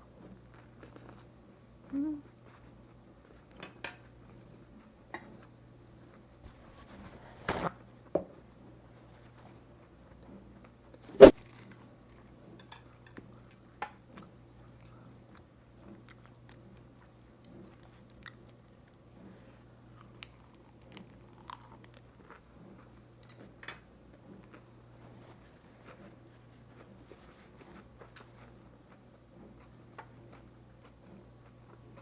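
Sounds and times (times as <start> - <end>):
chewing clicks and smacks: 13.1 - 19.0
crunchy bite: 20.2 - 22.0.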